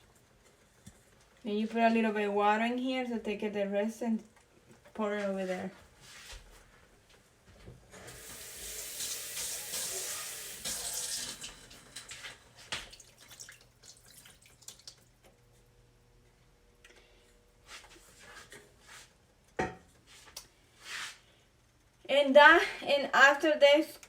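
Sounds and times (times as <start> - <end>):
water running from tap: 8.0 - 15.2.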